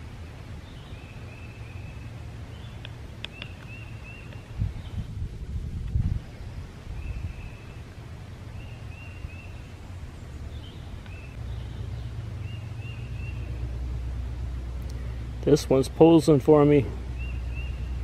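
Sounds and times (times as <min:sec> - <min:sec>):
steady low rumble: 0:00.0 - 0:18.0
small bird chirping: 0:00.6 - 0:05.1, 0:08.5 - 0:13.8, 0:17.1 - 0:18.0.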